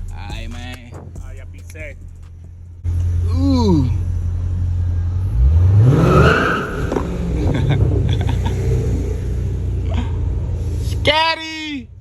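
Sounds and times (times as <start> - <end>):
car exhaust revving: 2.4 - 11.3.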